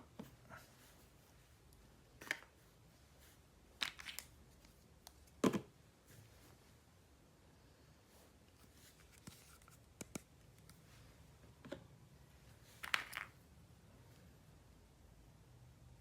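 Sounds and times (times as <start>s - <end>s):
hands handling plastic toys: 1.6s - 5.8s, 8.5s - 11.0s, 12.5s - 13.4s.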